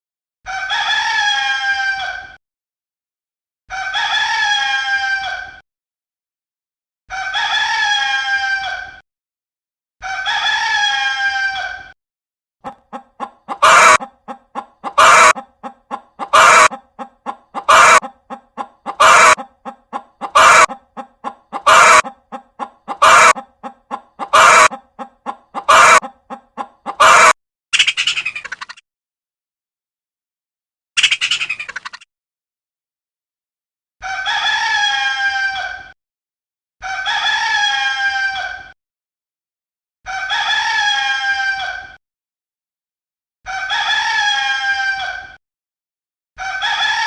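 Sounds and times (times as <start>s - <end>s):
harsh clucking calls: 12.6s - 28.8s
soft clucks: 12.6s - 28.8s
rooster crowing: 13.5s - 14.1s, 14.8s - 15.5s, 16.2s - 16.9s, 17.6s - 18.1s, 18.8s - 19.5s, 20.2s - 20.8s, 21.6s - 22.2s, 22.9s - 23.5s, 24.2s - 24.9s, 25.6s - 26.1s, 26.9s - 27.4s.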